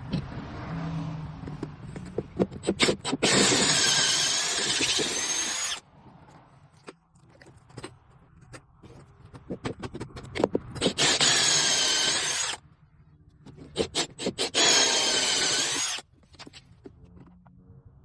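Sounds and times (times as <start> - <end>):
power drill cutting pipe: 2.6 - 5.8, 10.8 - 12.6, 13.8 - 16.0.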